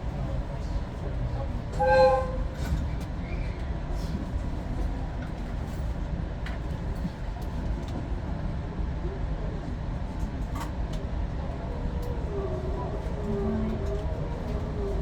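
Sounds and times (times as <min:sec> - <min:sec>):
train rumble: 0:00.0 - 0:15.0
train horn toot: 0:01.7 - 0:02.7.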